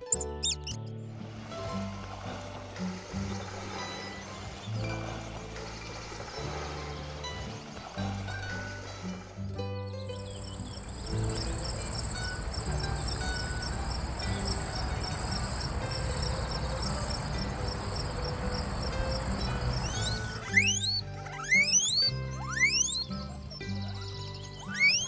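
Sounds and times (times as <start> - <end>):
insect trilling high: 0.0 - 0.8, 10.3 - 23.1, 24.6 - 25.0
short insect chirps: 0.0 - 0.8, 10.2 - 23.0, 24.6 - 25.0.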